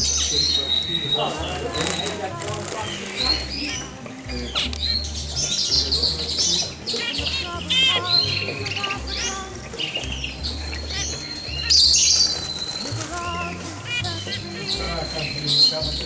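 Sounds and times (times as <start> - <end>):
long steady whistled note: 0.0 - 2.3
background music: 0.0 - 16.0
caged songbirds chirping: 0.0 - 16.0.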